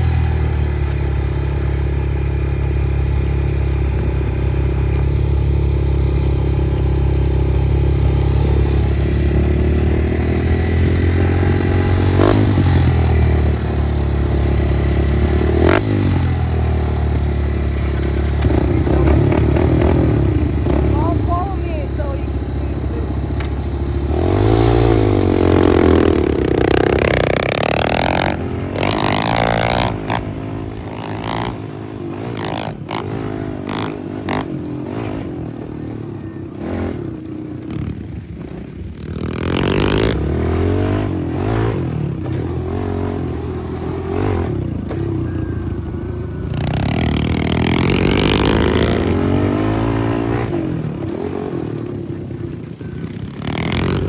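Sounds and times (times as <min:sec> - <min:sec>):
bike rattling and scraping: 0:00.0 - 0:35.6
motorbike engine revving: 0:00.0 - 0:54.0.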